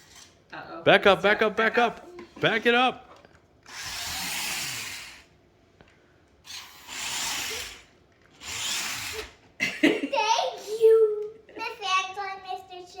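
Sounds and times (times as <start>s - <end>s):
toy truck motor whirring: 0.0s - 0.4s, 3.6s - 5.3s, 6.4s - 9.4s.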